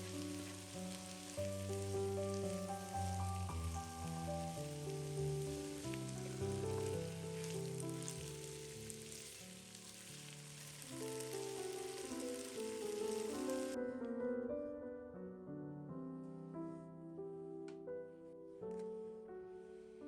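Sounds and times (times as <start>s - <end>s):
food sizzling in a pan: 0.0s - 13.8s
soft piano music: 0.0s - 20.0s.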